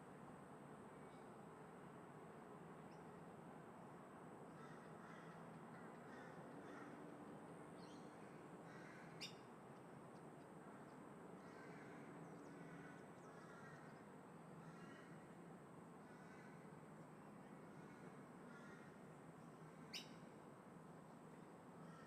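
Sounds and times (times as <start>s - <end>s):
faint steady hum: 0.0s - 22.0s
crows cawing: 4.6s - 5.4s, 6.1s - 7.0s, 8.7s - 9.2s, 11.4s - 12.0s, 12.6s - 13.9s, 18.5s - 19.0s, 21.8s - 22.0s.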